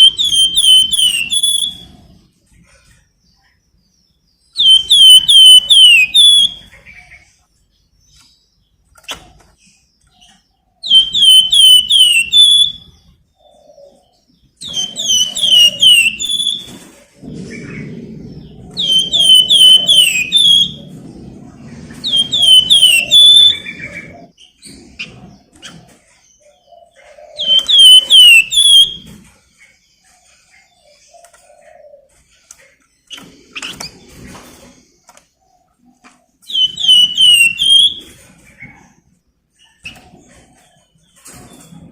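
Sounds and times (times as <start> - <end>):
songbird whistling song: 0.0 - 2.2, 4.2 - 7.2, 10.0 - 29.2, 36.4 - 38.8.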